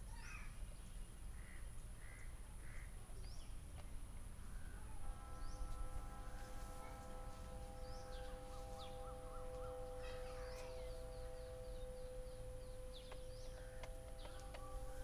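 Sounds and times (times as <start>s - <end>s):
faint steady whine: 0.0s - 15.0s
small birds chirping: 0.0s - 15.0s.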